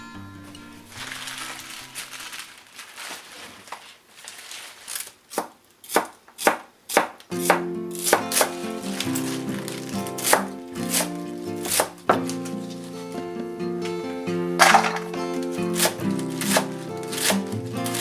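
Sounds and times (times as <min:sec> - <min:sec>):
background music: 0:00.0 - 0:02.1, 0:07.3 - 0:18.0
leaves rustling: 0:00.6 - 0:05.4, 0:07.9 - 0:13.2, 0:14.6 - 0:18.0
knife chopping on wooden board: 0:05.3 - 0:08.6, 0:10.1 - 0:12.3, 0:15.8 - 0:18.0.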